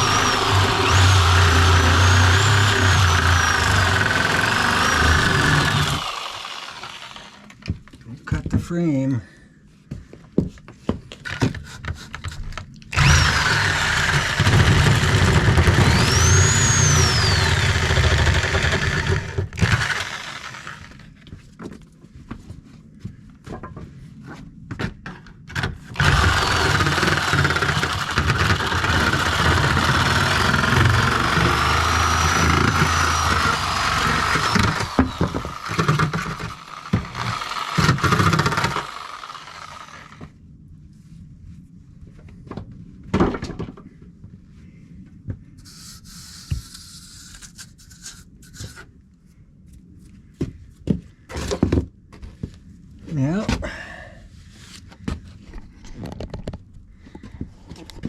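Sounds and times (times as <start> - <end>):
chainsaw cutting wood: 0.0 - 7.6, 12.9 - 21.1, 25.5 - 40.3.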